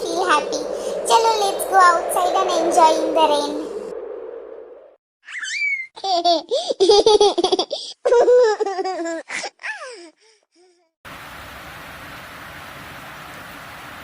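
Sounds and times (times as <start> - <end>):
childlike giggling: 5.4 - 9.6
steady rain: 11.1 - 14.0.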